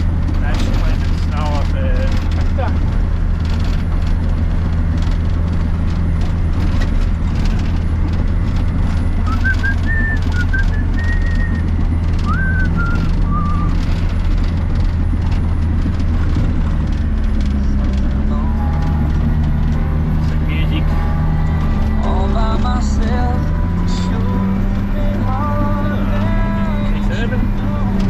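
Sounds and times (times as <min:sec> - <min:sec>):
bulldozer diesel engine drone: 0:00.0 - 0:28.0
high whistled notes: 0:09.3 - 0:11.7, 0:12.3 - 0:13.8.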